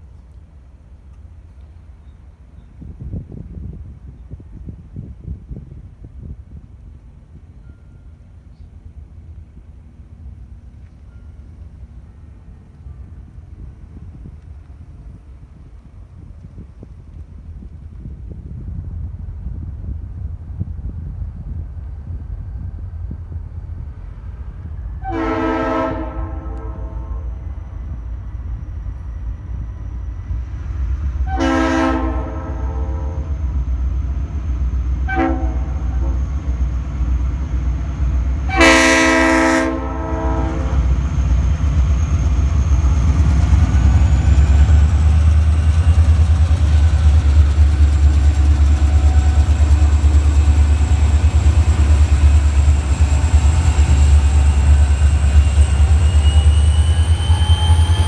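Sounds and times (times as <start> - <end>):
diesel locomotive engines rumbling: 0.0 - 58.0
train horn blasts: 25.0 - 28.0, 31.2 - 33.6, 35.0 - 36.5, 38.4 - 41.1, 53.7 - 58.0.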